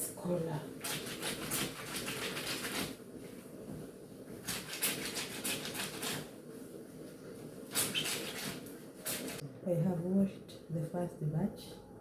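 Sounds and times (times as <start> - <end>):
water swishing in washing machine: 0.4 - 9.4.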